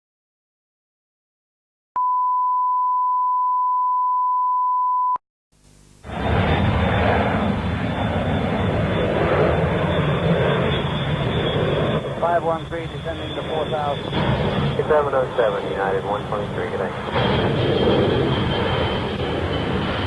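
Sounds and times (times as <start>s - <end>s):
steady beep tone: 2.0s - 5.2s
airplane engine roar: 6.0s - 20.0s.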